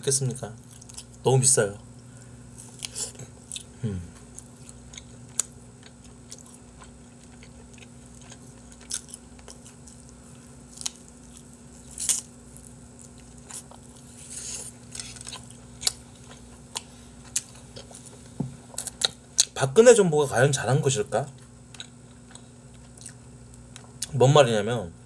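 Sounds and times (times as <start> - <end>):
faint steady hum: 0.0 - 25.0
wet chewing and biting: 4.3 - 18.1, 21.4 - 24.1.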